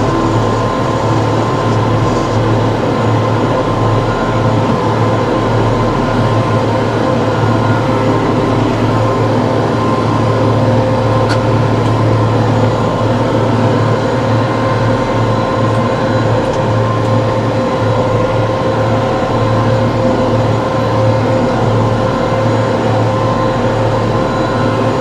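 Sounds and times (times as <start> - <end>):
tractor engine droning: 0.0 - 25.0.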